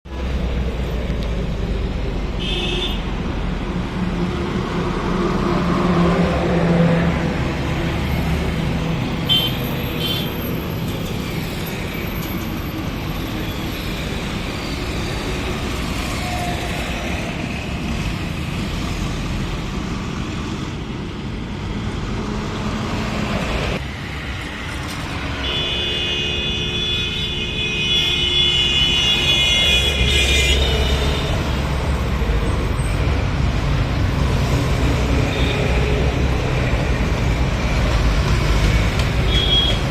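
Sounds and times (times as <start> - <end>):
highway traffic rumble: 0.0 - 39.9
vehicle horns: 2.4 - 3.1, 9.3 - 10.4, 25.4 - 31.7, 39.2 - 39.9.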